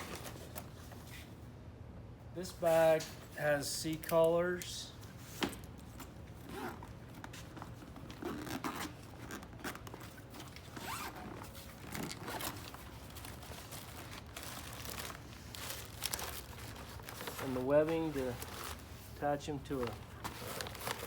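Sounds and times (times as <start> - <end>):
zipper on soft bag opening: 6.4 - 6.9, 8.1 - 9.8, 10.7 - 12.7.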